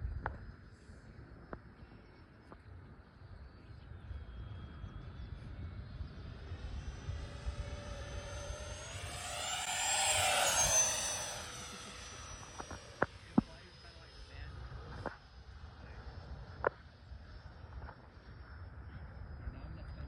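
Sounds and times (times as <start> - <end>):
electric jet fan whine passing: 3.5 - 16.5.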